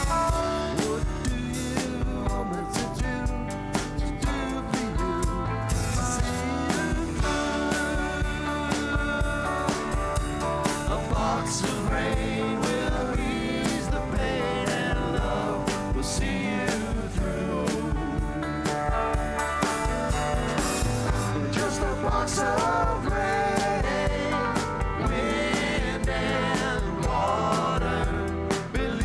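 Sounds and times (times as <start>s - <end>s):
drum kit beat: 0.0s - 29.0s
lead guitar line bending: 0.0s - 29.0s
rock band playing live: 0.0s - 29.0s.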